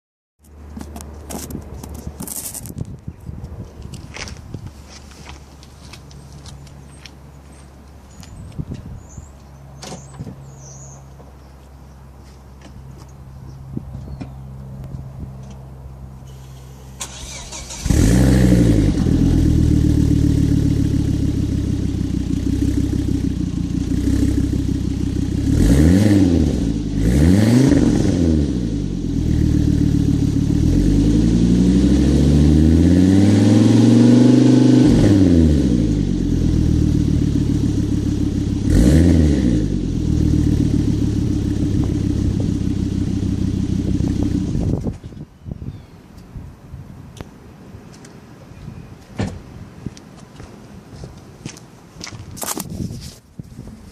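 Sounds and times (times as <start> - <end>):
car engine starting and revving: 16.3 - 44.8.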